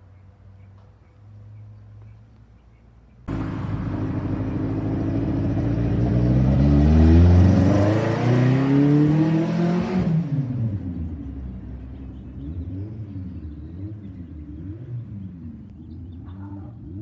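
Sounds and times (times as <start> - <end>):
race car engine accelerating: 3.3 - 16.0.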